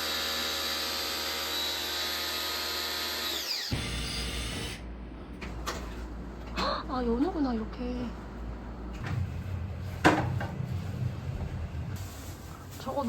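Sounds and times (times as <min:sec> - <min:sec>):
electric motor winding down: 0:00.0 - 0:04.8.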